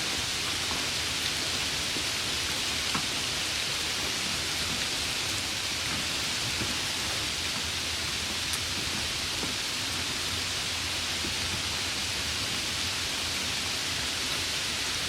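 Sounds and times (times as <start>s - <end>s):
rain falling: 0.0s - 15.0s
raindrop ticks: 5.8s - 9.7s.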